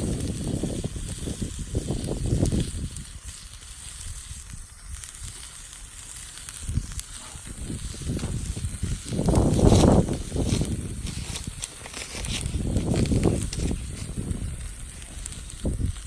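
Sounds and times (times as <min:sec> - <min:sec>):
wood fire crackling: 0:00.0 - 0:16.0
low rumbling on microphone: 0:06.6 - 0:16.0.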